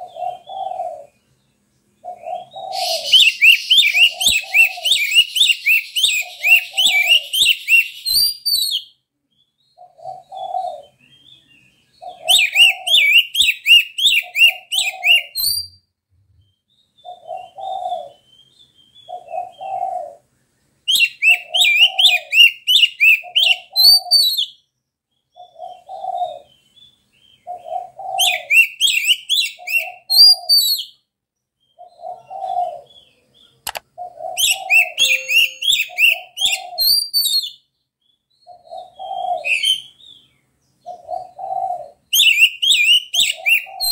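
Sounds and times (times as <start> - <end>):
dove cooing: 0.0 - 1.2, 2.0 - 8.1, 9.8 - 11.2, 12.0 - 15.4, 17.1 - 18.3, 19.1 - 20.3, 20.9 - 24.5, 25.4 - 26.6, 27.4 - 30.8, 31.8 - 33.2, 33.9 - 36.9, 38.5 - 40.0, 40.8 - 43.9
bird singing rapid high chirps: 2.5 - 9.6, 34.4 - 38.6.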